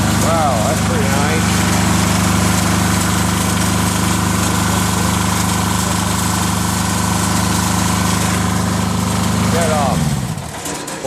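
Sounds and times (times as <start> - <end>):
diesel engine running steadily: 0.0 - 11.0.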